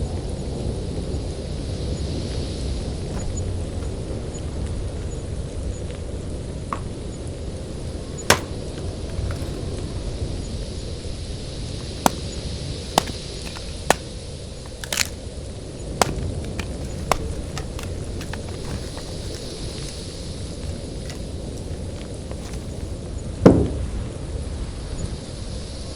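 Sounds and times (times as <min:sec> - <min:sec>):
axe chopping wood: 0:03.1 - 0:04.7, 0:06.7 - 0:09.9, 0:11.8 - 0:22.9.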